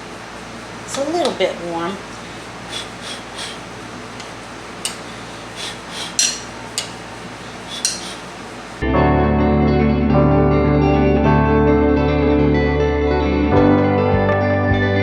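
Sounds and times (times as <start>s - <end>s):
spoon scraping and clinking dish: 6.1s - 7.0s, 7.7s - 8.2s.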